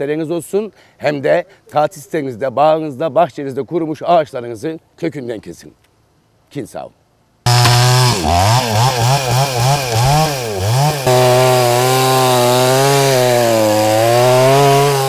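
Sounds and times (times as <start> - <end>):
chainsaw engine revving: 7.5 - 15.0.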